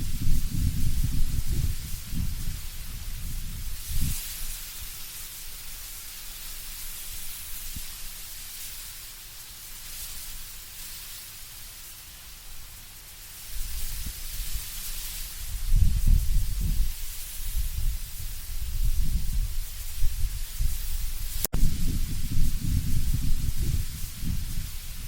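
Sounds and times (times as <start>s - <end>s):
low rumbling wind gusts: 0.0s - 4.9s, 13.5s - 25.0s
leaves rustling in wind: 0.0s - 25.0s.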